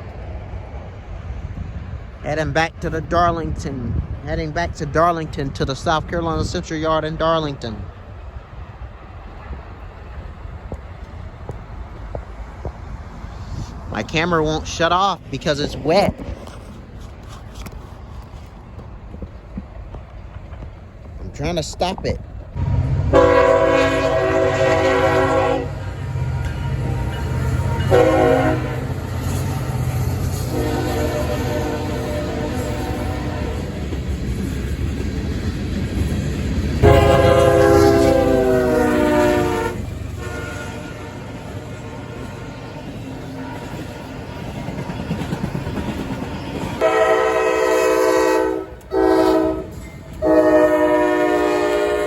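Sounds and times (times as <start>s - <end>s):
train rumbling: 0.0s - 52.0s
locomotive air horn: 23.1s - 29.0s, 30.5s - 33.7s, 36.8s - 42.8s, 46.8s - 52.0s.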